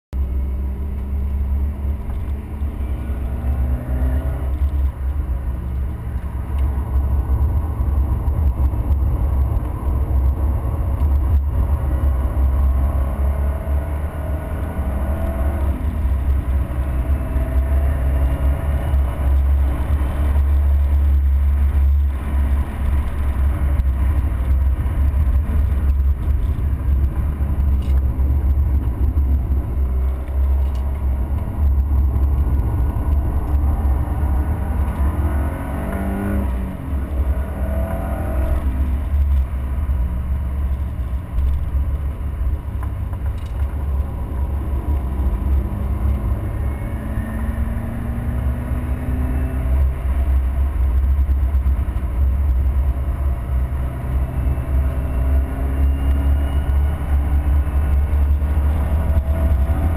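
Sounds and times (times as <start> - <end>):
heavy low rumble: 0.1 - 59.9
car engine revving hard: 11.7 - 23.1, 30.6 - 39.2, 44.5 - 50.5, 52.8 - 59.9.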